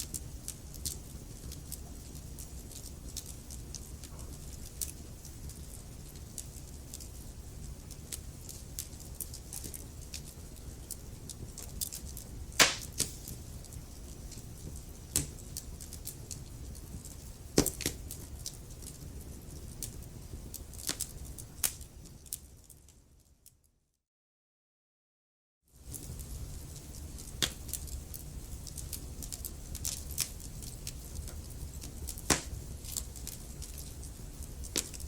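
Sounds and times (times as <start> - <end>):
wood fire crackling: 0.0 - 23.6, 25.8 - 35.0.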